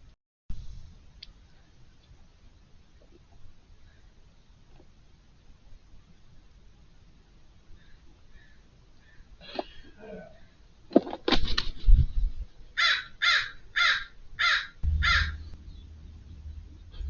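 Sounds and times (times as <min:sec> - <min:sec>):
crow cawing: 0:07.8 - 0:09.2, 0:12.8 - 0:15.4.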